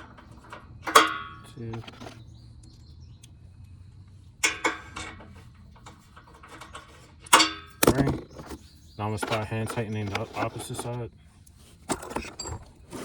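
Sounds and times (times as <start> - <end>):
sharp metallic clanks: 0.0 - 2.3, 4.4 - 10.8.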